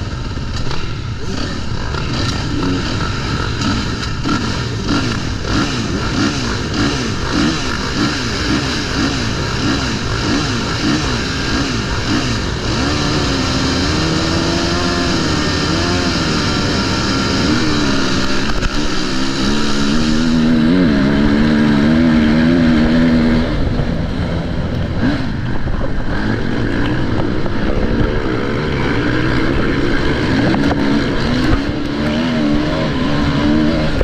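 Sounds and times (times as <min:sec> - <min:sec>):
constant low rumble: 0:00.0 - 0:34.0
motocross bike engine revving: 0:00.0 - 0:34.0.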